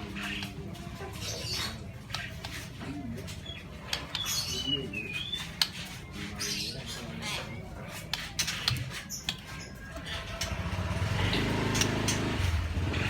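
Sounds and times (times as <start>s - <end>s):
birds chirping whistled notes: 3.4s - 9.9s.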